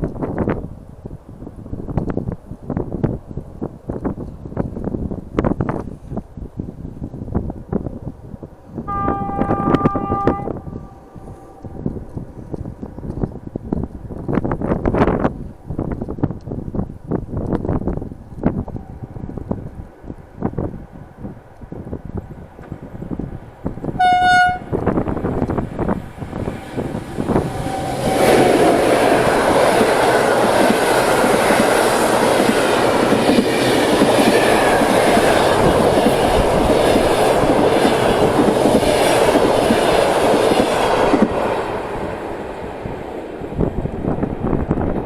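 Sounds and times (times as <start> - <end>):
train horn: 8.8 - 11.8, 24.0 - 24.9, 26.3 - 29.8.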